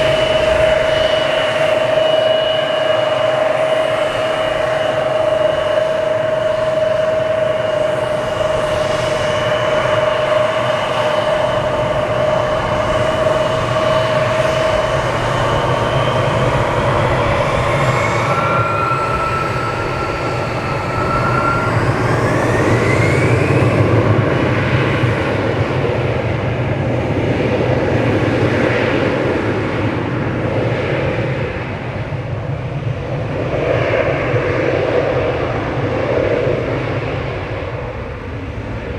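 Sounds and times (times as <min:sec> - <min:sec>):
jet engines at takeoff power: 0:00.0 - 0:38.9.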